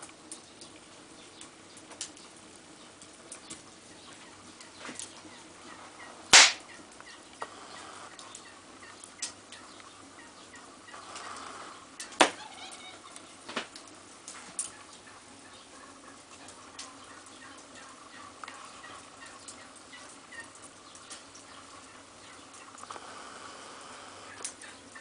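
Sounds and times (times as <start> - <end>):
firewood crackling: 0.0 - 25.0
sharp pops of burning wood: 6.3 - 8.4, 10.9 - 12.5, 13.4 - 14.7.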